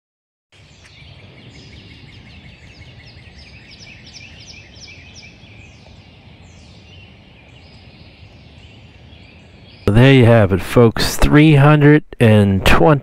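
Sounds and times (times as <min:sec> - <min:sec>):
bird singing chirps: 0:00.6 - 0:10.0.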